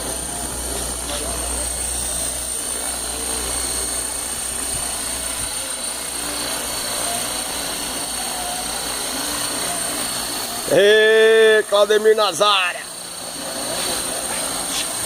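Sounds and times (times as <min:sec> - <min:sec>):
rc helicopter motor whine: 0:00.0 - 0:15.0
rotor noise: 0:00.0 - 0:15.0.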